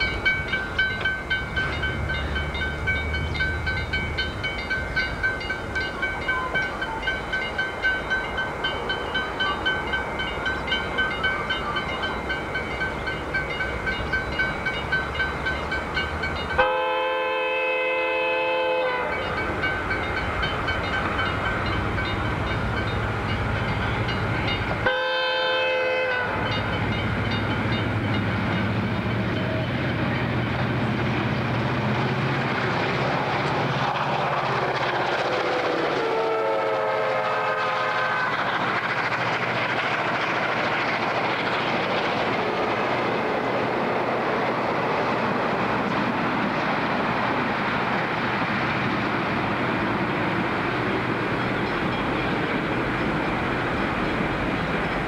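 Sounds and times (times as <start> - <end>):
train wheel clatter: 0.0 - 16.8, 19.0 - 55.0
train rolling past: 0.0 - 55.0
train horn: 16.5 - 19.3, 24.8 - 26.6, 35.4 - 38.4.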